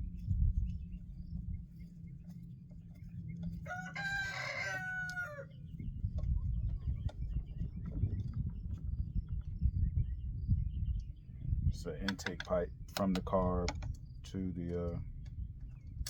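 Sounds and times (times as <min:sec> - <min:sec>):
rooster crowing: 0:03.6 - 0:05.5.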